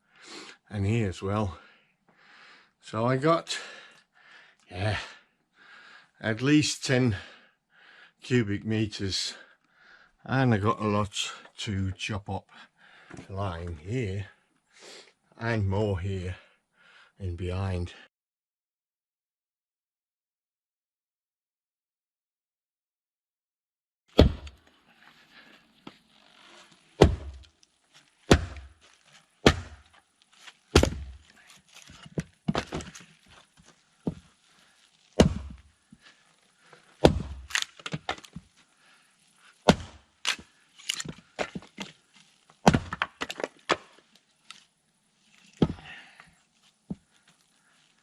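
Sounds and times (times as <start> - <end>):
axe striking wood: 24.2 - 24.6, 27.0 - 27.5, 28.3 - 28.8, 29.4 - 29.9, 30.7 - 31.3, 32.0 - 33.0, 35.2 - 35.6, 37.0 - 38.4, 39.6 - 41.9, 42.6 - 44.0, 45.6 - 45.8
wood splitting and knocks: 24.2 - 24.6, 27.0 - 27.5, 28.3 - 34.3, 35.2 - 35.7, 36.7 - 38.5, 39.6 - 42.0, 42.6 - 44.0, 45.5 - 45.9.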